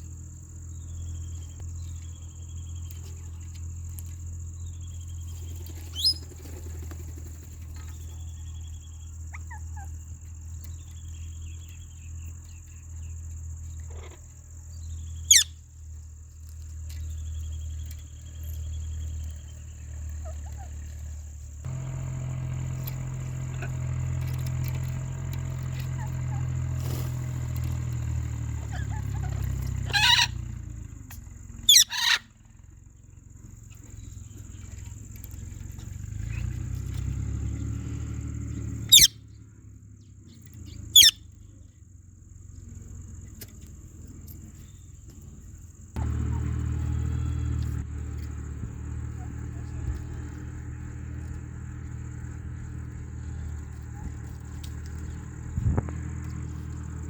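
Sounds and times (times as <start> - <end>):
low steady rumble: 0.0 - 57.0
parrot squawking: 15.3 - 15.5, 28.8 - 30.4, 31.7 - 32.3, 38.9 - 39.1, 41.0 - 41.2.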